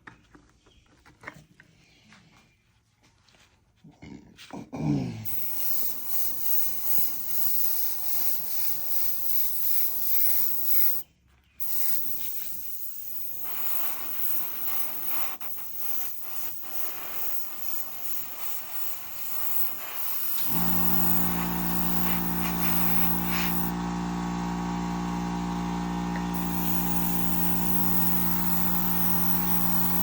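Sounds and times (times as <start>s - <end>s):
spray paint hissing: 5.3s - 11.0s, 11.6s - 23.8s, 25.8s - 30.0s.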